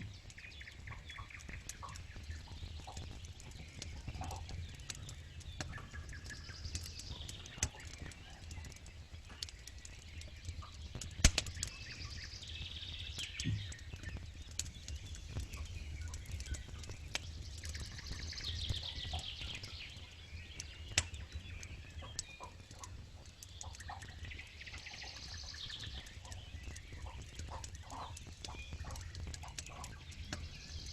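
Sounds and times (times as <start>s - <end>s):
campfire crackling and popping: 0.0s - 30.9s
birds singing trilled phrases: 10.0s - 30.9s.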